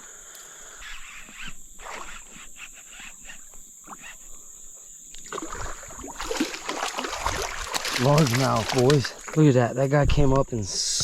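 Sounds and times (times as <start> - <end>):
high insect drone: 0.0 - 11.0
water splashing: 5.2 - 9.5
light ticks and rustles: 7.6 - 9.4.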